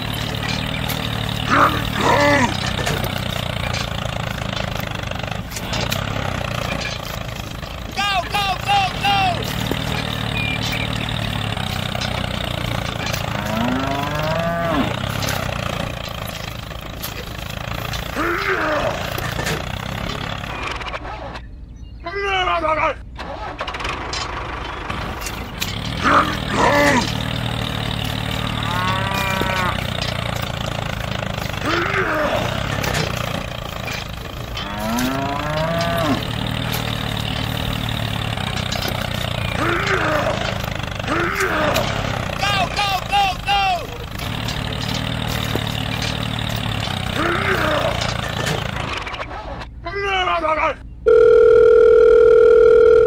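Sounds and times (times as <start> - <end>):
low engine hum: 0.0 - 21.9, 23.8 - 49.6
cow mooing: 12.8 - 16.0, 28.2 - 30.6, 34.4 - 36.9.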